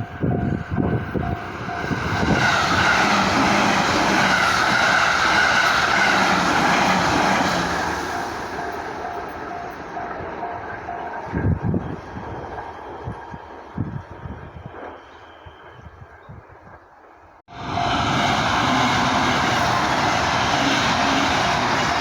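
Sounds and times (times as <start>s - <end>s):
level crossing warning bell: 0.0s - 3.4s, 7.7s - 14.0s, 17.5s - 19.6s
train passing: 0.0s - 22.0s.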